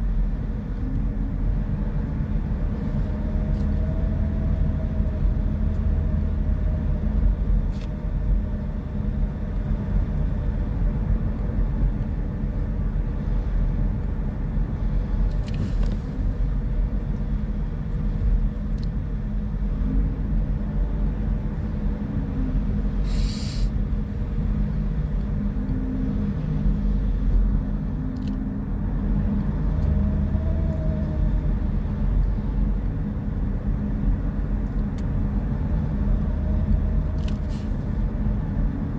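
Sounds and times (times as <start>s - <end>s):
engine and road rumble: 0.0s - 38.9s
short hisses: 23.0s - 23.8s.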